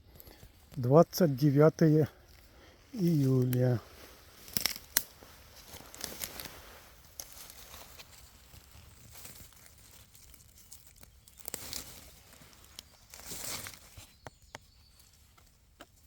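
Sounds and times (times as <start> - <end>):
rustling of forest litter: 0.0 - 16.0
sharp twig clicks: 4.4 - 5.2.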